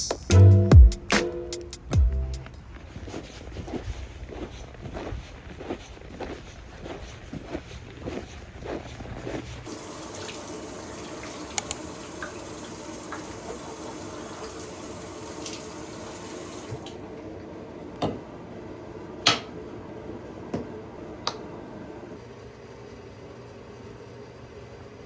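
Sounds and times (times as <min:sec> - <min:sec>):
tap water running into sink: 0:09.7 - 0:17.0.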